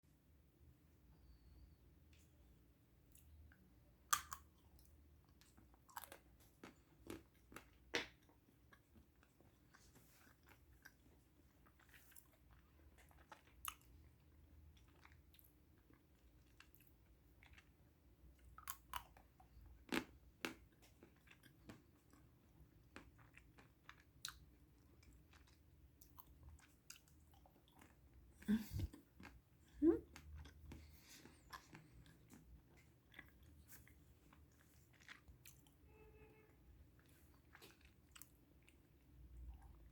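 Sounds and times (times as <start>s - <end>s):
chocolate cracking and snapping: 4.1s - 4.5s.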